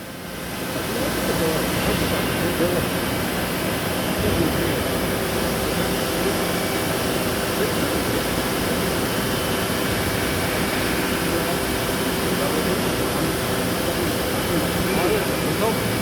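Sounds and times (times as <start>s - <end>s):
machine-shop equipment humming: 0.0s - 16.0s
faint voices: 4.0s - 16.0s.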